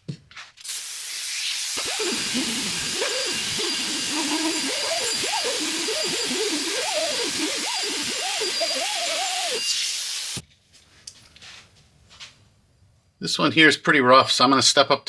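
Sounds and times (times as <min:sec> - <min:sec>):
die grinder hiss and whine: 0:00.7 - 0:10.4.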